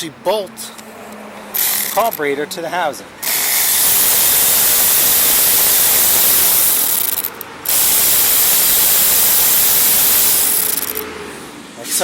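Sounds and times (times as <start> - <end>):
air ratchet hissing: 1.5 - 2.3, 3.2 - 11.0.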